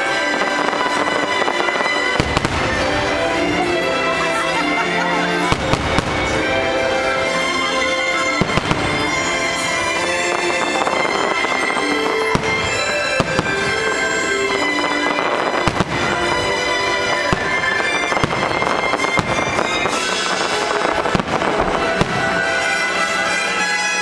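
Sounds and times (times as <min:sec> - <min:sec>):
loud show music: 0:00.0 - 0:24.0
firework shells bursting: 0:05.4 - 0:23.6.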